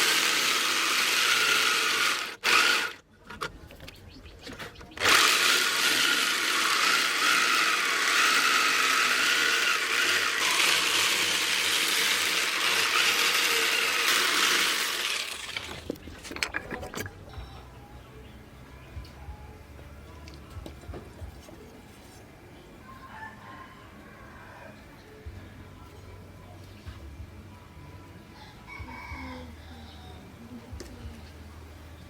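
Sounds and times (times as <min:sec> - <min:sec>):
grinder on steel blade: 0:00.0 - 0:03.0, 0:05.0 - 0:15.7.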